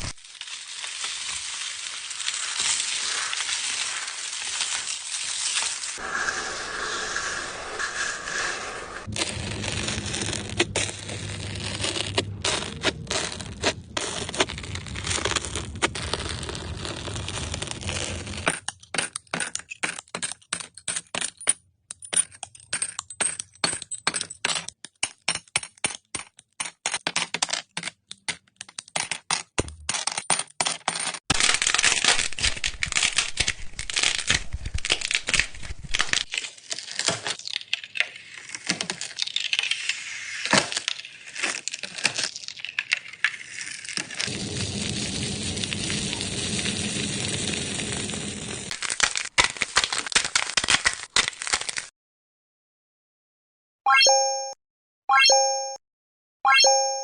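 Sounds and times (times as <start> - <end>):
crunching and crackling: 0.0 - 6.0, 9.0 - 20.5, 29.5 - 51.9.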